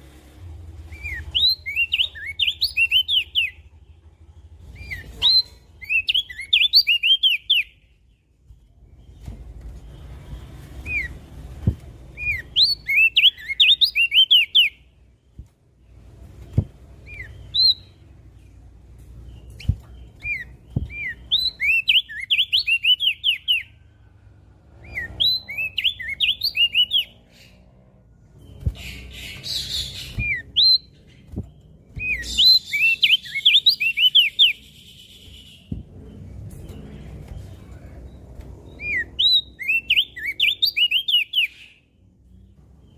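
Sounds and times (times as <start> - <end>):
bird singing high sweeping chirps: 0.8 - 3.7, 4.6 - 8.4, 12.1 - 15.0, 16.5 - 18.4, 19.2 - 23.9, 24.7 - 27.7, 28.4 - 42.0.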